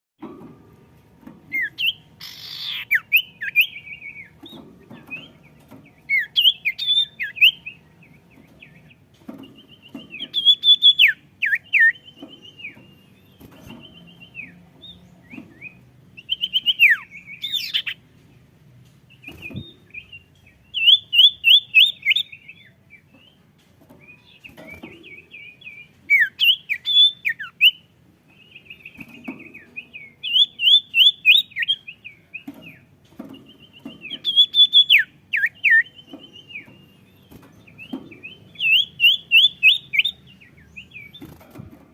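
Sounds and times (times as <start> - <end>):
songbird singing chirps and trills: 0.2 - 41.9.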